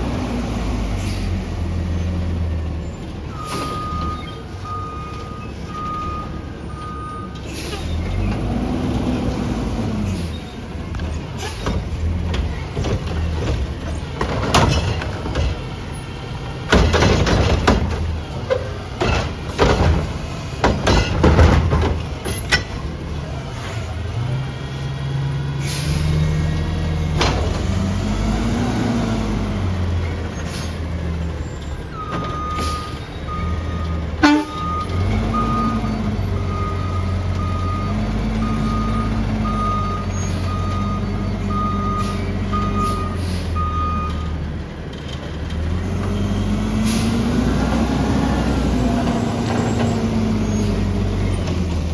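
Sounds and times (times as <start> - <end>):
garbage truck engine revving: 0.0 - 51.9
reversing beeper: 3.3 - 7.4, 32.0 - 44.3
recyclables crashing into truck: 11.7 - 15.8, 16.6 - 23.0.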